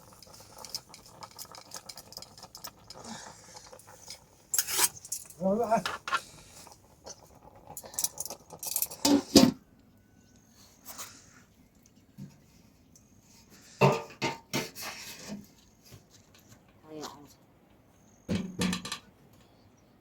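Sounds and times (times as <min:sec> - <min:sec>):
clinks and clatters of utensils: 0:00.0 - 0:09.6.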